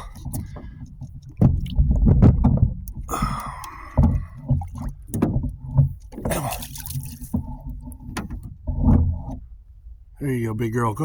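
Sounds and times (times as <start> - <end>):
water splashing and sloshing: 0.0 - 11.0
knocks and handling noise: 7.0 - 9.5.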